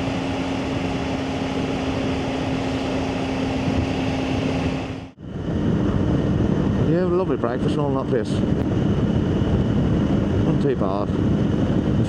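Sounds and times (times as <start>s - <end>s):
motorcycle engine cruising: 0.0s - 5.2s
wind and road noise: 0.0s - 12.0s.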